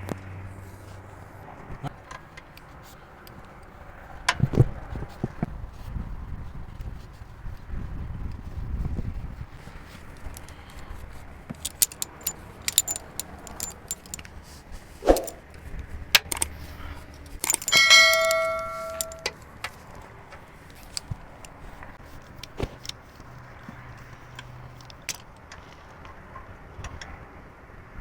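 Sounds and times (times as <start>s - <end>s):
metal tools clinking: 11.5s - 15.4s, 16.2s - 19.7s
struck metal ringing: 17.4s - 19.4s.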